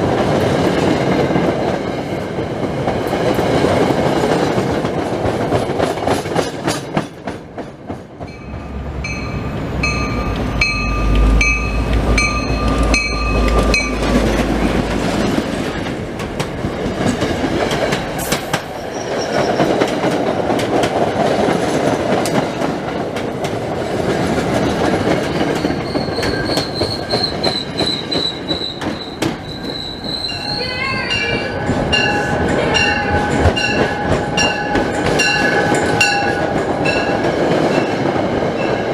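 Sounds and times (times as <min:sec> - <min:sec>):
train rail rumble and wheel clatter: 0:00.0 - 0:38.9
high wheel squeal: 0:25.5 - 0:32.4.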